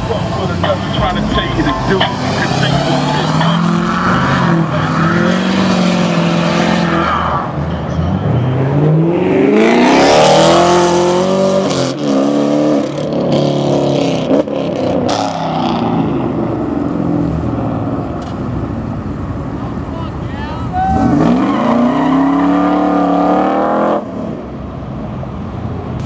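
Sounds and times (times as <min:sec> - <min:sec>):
car accelerating hard: 0:00.0 - 0:07.5, 0:08.4 - 0:18.1, 0:20.9 - 0:24.5
car engines running: 0:00.0 - 0:26.0.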